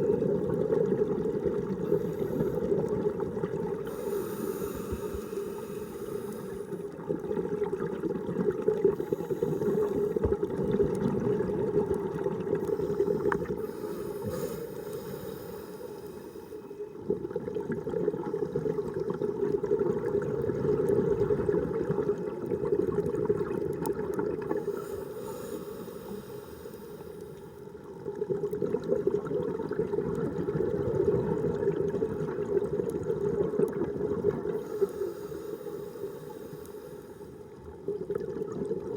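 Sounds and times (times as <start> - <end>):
underwater regulator bubbling: 0.0 - 16.6.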